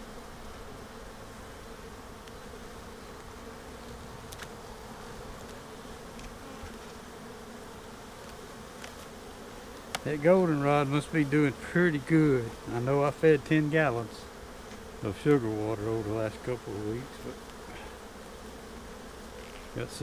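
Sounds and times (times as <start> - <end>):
honeybees buzzing: 0.0 - 20.0
hive frames clicking: 4.2 - 4.6, 5.3 - 7.0, 8.2 - 10.1.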